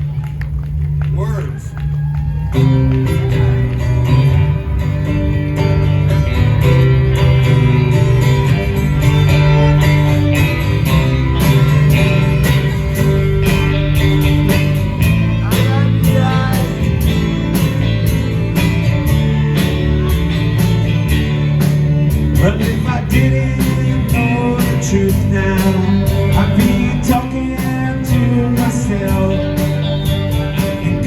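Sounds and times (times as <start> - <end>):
guitar: 0.0 - 31.0
steady beat: 0.0 - 31.0
sustained bass notes: 0.0 - 31.0.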